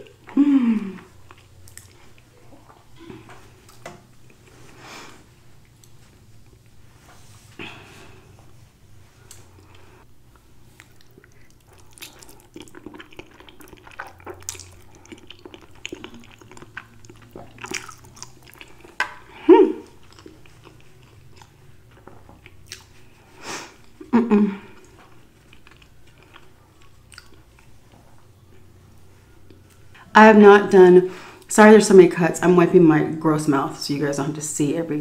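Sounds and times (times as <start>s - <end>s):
person chewing with wet mouth sounds: 0.0s - 4.8s, 8.2s - 30.0s.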